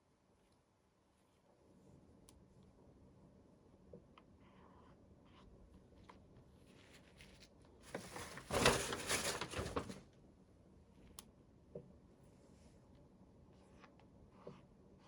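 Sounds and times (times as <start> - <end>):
packaging rustling and crinkling: 6.9 - 10.0.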